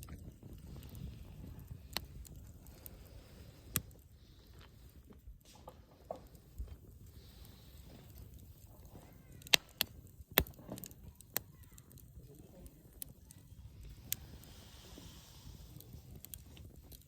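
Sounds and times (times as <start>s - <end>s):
firewood crackling and popping: 0.0s - 17.0s
low rumble of fire: 0.0s - 17.0s.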